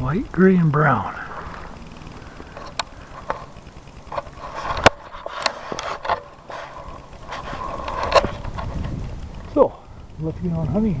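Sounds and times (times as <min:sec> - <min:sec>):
footsteps crunching in snow: 0:01.2 - 0:09.1.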